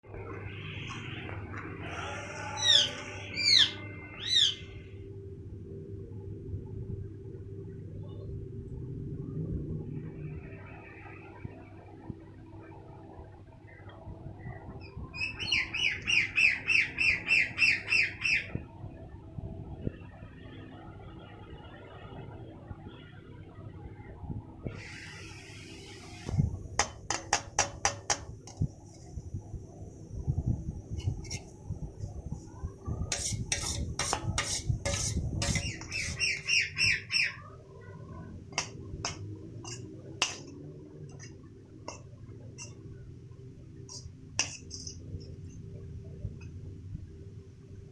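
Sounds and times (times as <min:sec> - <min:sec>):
bird chirping: 0:14.8 - 0:18.5, 0:35.6 - 0:37.5
utensil knocking against dish: 0:26.8 - 0:28.3.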